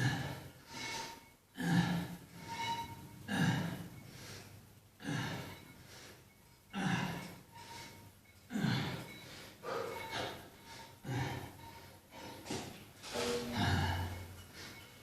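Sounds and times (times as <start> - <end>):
man breathing hard: 3.3 - 12.6, 13.5 - 15.0.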